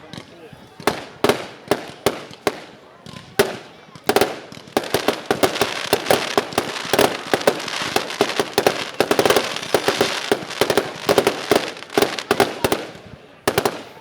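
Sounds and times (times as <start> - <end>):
fireworks banging and crackling: 0.0 - 14.0.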